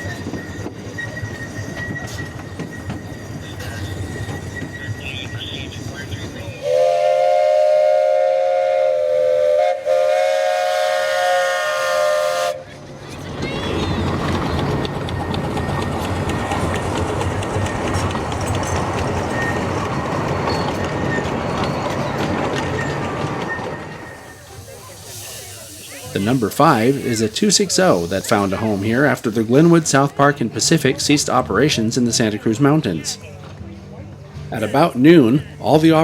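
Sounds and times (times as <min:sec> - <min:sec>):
train running noise: 0:00.0 - 0:36.0
steam whistle blasts: 0:06.6 - 0:12.7.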